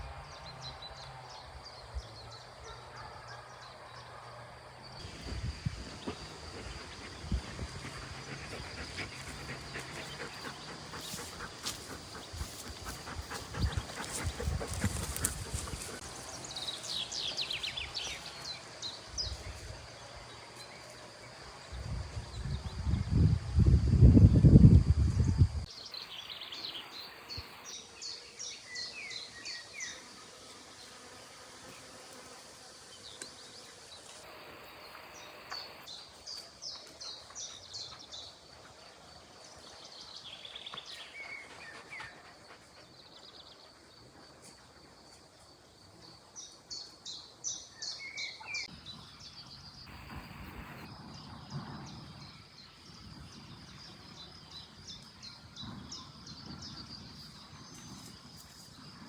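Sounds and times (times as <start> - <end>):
songbird singing: 4.9 - 30.1, 33.0 - 43.9, 46.0 - 59.0.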